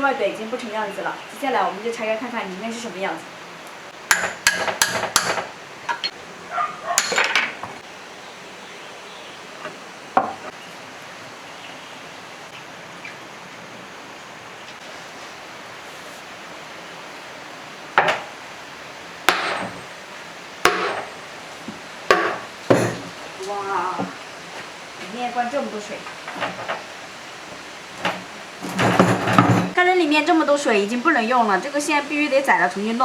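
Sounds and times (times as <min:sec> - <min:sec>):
hammer strikes on metal: 0:04.1 - 0:06.1, 0:19.3 - 0:19.8, 0:20.6 - 0:21.1, 0:22.1 - 0:23.1.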